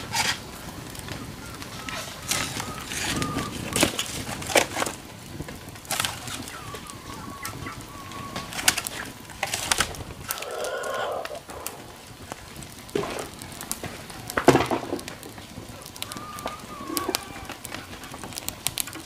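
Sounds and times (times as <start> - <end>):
bird calls: 1.0 - 4.2, 5.9 - 9.2, 10.3 - 11.7, 15.7 - 18.3.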